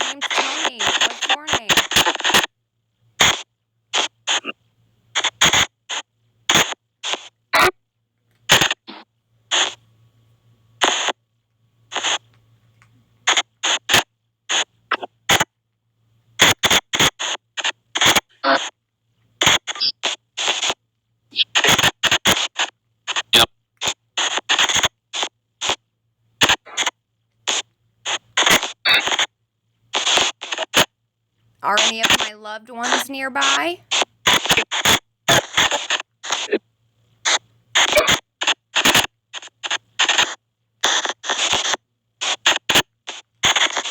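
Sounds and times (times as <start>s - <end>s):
short bursts of hissing static: 0.0s - 2.3s.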